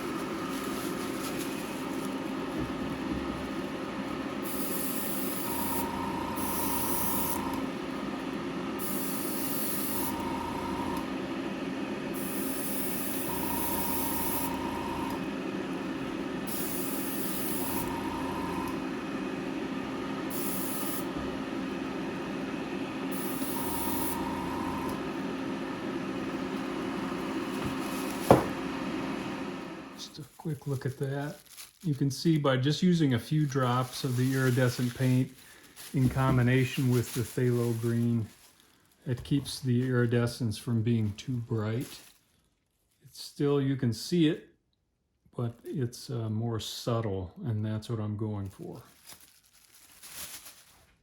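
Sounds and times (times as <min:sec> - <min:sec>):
airbrush hissing: 0:04.4 - 0:07.6, 0:08.8 - 0:10.2, 0:12.2 - 0:14.6, 0:16.4 - 0:18.7, 0:20.3 - 0:21.1, 0:23.1 - 0:25.0.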